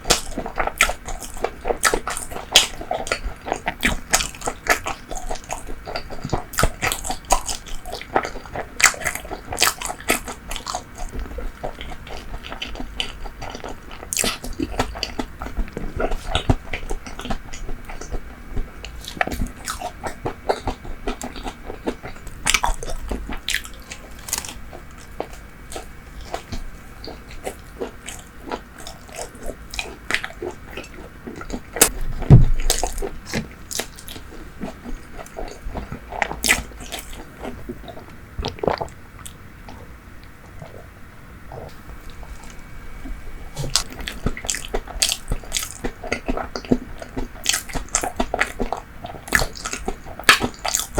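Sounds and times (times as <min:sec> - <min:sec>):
chewing with mouth clicks: 0:00.0 - 0:40.9, 0:41.5 - 0:50.9
heavy low thump: 0:32.0 - 0:32.7.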